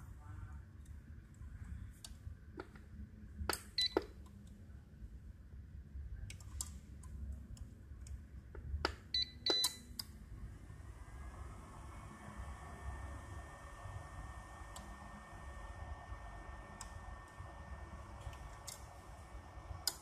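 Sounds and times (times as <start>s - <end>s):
button and relay clicks: 8.8s - 10.1s.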